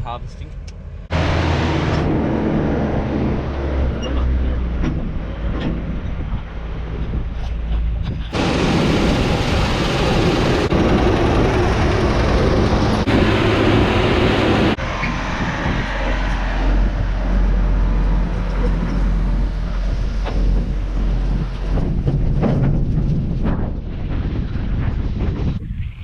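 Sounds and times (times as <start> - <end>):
heavy noise: 1.0 - 5.6, 8.3 - 23.6
vehicle engine running: 7.8 - 23.4.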